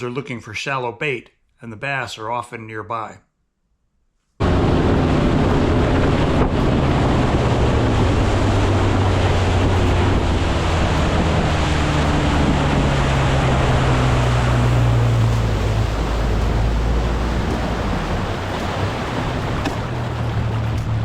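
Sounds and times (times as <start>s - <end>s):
boat motor droning: 4.4s - 21.0s
water noise: 4.4s - 21.0s
wind rushing on microphone: 4.4s - 21.0s.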